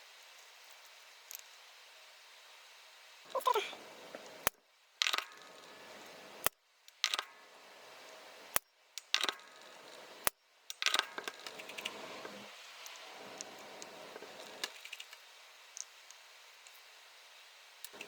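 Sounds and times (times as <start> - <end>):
radio hissing: 3.3 - 4.5, 5.3 - 6.5, 11.1 - 15.1.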